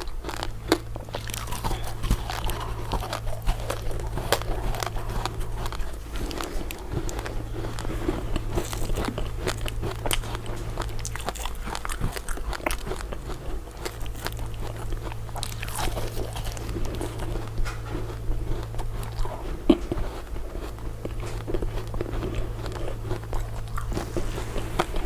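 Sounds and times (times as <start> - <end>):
crunching ice dessert: 0.0 - 25.0
low steady hum: 0.0 - 25.0.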